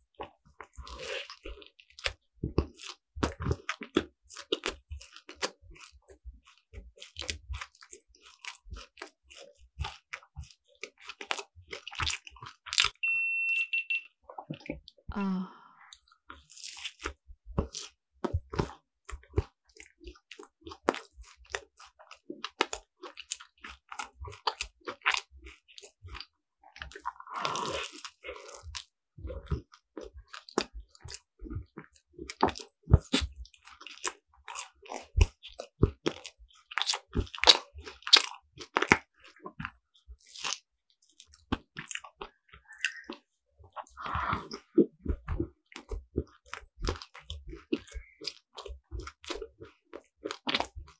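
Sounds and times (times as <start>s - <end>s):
crunchy pastry crunching: 0.2s - 12.9s, 16.3s - 50.9s
wet chewing: 0.2s - 13.0s, 15.9s - 50.9s.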